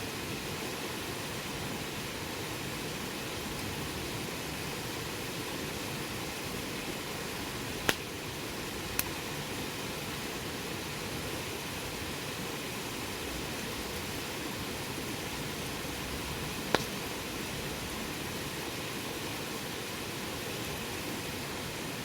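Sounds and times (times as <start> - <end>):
campfire hissing: 0.0 - 22.0
fire crackling pop: 7.8 - 8.1, 16.7 - 17.0.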